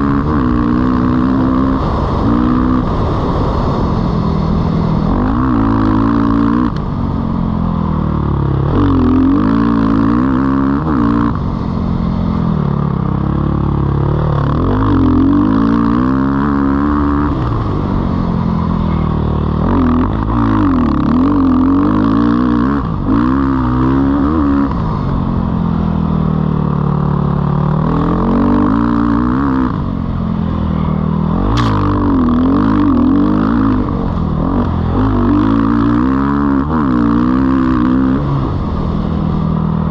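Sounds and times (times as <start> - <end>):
dirt bike engine revving: 0.0 - 39.9
short sharp clack: 31.5 - 32.0.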